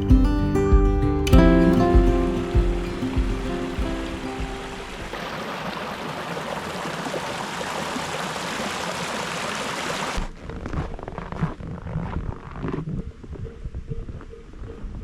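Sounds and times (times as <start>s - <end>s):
rushing water: 1.4s - 10.2s.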